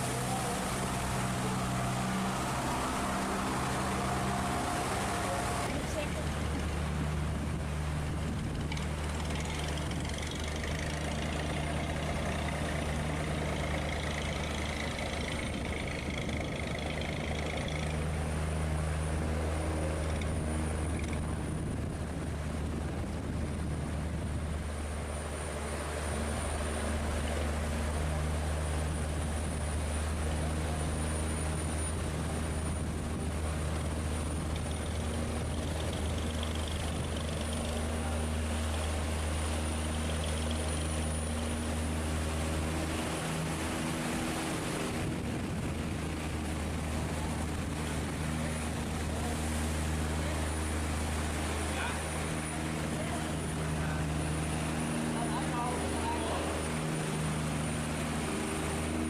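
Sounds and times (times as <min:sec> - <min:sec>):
ship engine droning: 0:00.0 - 0:59.0.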